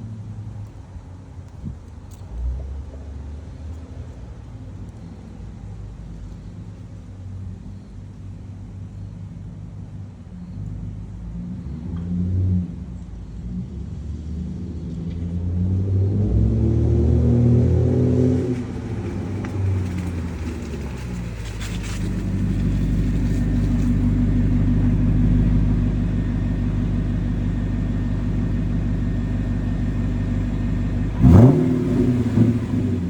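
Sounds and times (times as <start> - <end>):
car exhaust rumbling: 14.3 - 33.0
engine rev blip: 31.1 - 33.0.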